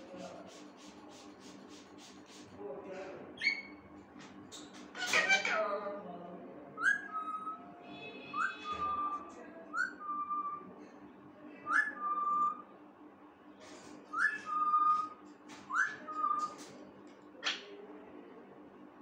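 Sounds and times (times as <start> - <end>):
parrot scratchy sounds: 0.0 - 2.6, 3.4 - 5.8, 13.6 - 17.6
parrot whistling: 3.4 - 3.8, 6.8 - 7.7, 8.3 - 9.2, 9.8 - 10.6, 11.7 - 12.6, 14.1 - 16.6.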